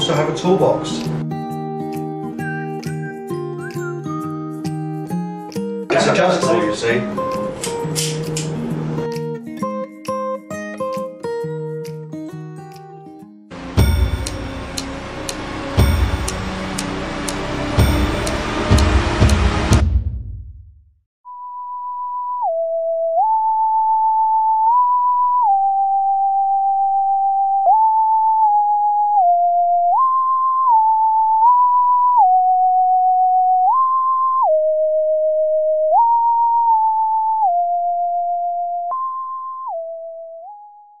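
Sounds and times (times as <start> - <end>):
electronic beep melody: 2.3 - 4.4, 13.5 - 19.8.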